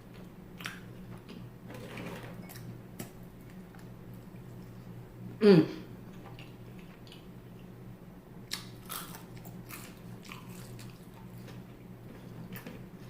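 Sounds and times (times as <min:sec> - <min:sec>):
crunchy chewing: 0:08.5 - 0:13.0.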